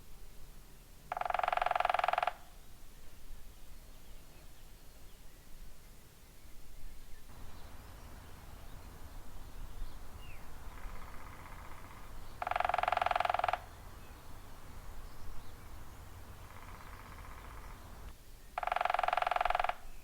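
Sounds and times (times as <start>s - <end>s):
woodpecker drumming on wood: 1.1s - 2.6s, 10.0s - 19.9s.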